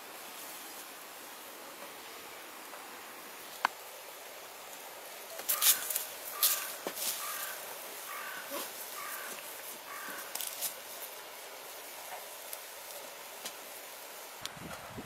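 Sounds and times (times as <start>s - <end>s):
campfire crackling: 0.0s - 14.9s.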